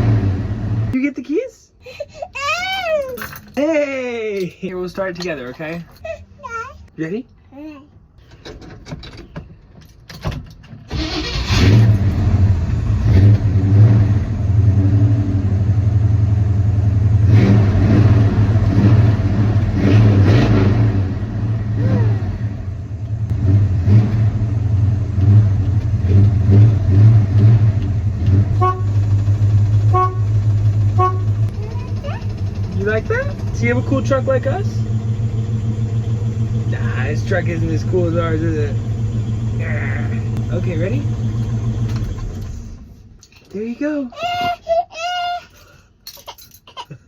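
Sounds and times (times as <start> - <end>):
truck engine starting and revving: 0.0 - 1.0, 10.9 - 43.2
short horn toots: 28.5 - 29.0, 29.9 - 30.4, 31.0 - 31.4.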